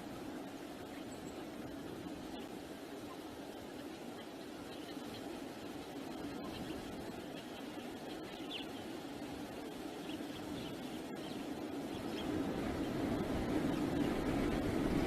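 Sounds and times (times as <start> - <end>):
wind buffeting microphone: 9.1 - 15.0.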